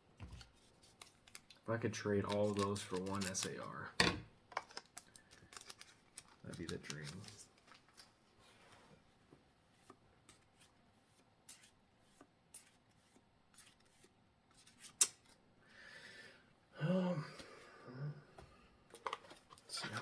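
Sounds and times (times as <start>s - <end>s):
foil pack rustle: 0.6s - 3.8s, 4.7s - 8.2s.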